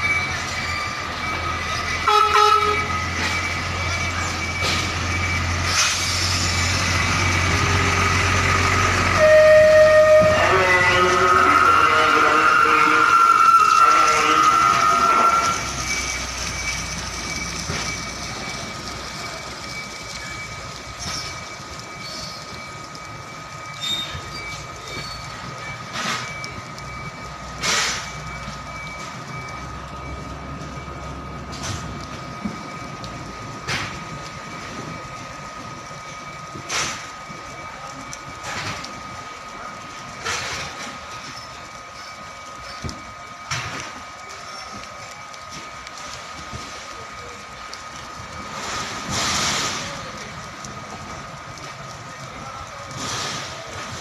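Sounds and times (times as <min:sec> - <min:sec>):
heavy vehicle running: 0:00.0 - 0:54.0.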